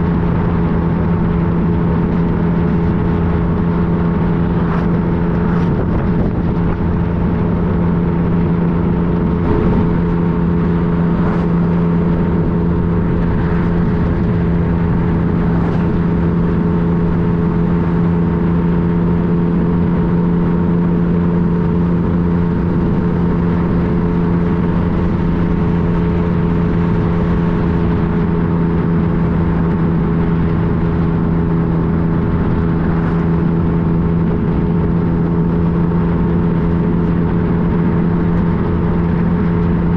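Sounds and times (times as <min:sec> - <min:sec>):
motorcycle engine cruising: 0:00.0 - 0:39.9
road noise: 0:00.0 - 0:39.9
wind rushing: 0:02.8 - 0:17.2.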